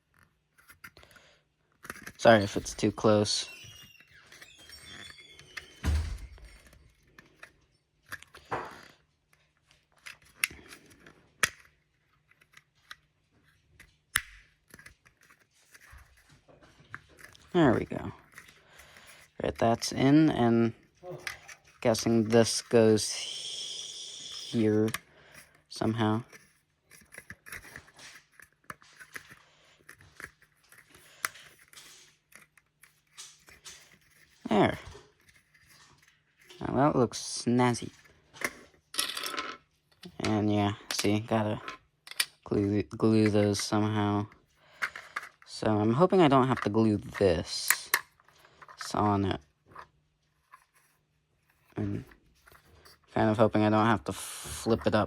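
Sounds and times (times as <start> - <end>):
plastic parts clicking: 0.1 - 23.1, 24.2 - 36.7, 37.8 - 50.9
plastic model parts clicking: 9.9 - 13.1, 13.8 - 16.3, 24.2 - 36.6, 40.9 - 43.8.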